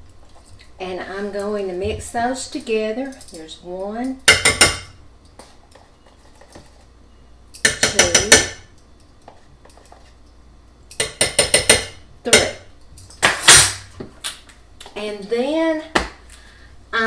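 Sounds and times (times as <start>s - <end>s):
metal spoon tapping a dish: 4.2s - 4.9s, 7.6s - 8.7s, 10.9s - 12.6s.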